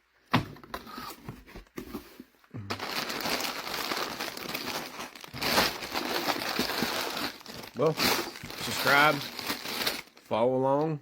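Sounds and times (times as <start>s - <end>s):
plastic packaging crinkling: 2.7s - 10.3s.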